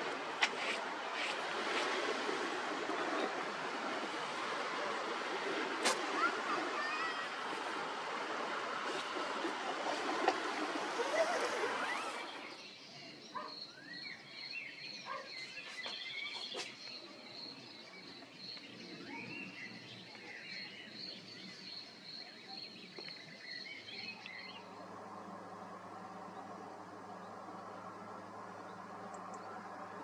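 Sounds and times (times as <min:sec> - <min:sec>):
birds chirping: 0:05.8 - 0:30.0
low steady hum: 0:23.4 - 0:30.0.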